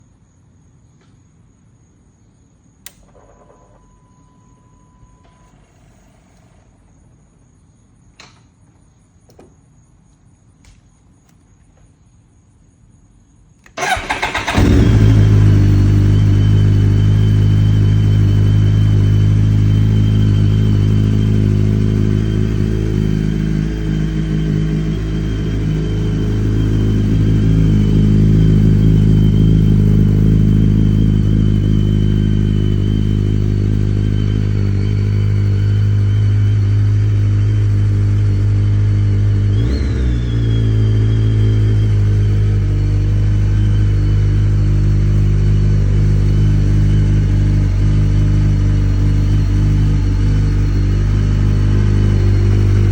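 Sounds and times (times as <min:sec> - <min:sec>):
starter motor cranking: 0:05.3 - 0:06.9, 0:13.7 - 0:15.7
motorcycle engine idling: 0:13.8 - 0:52.9.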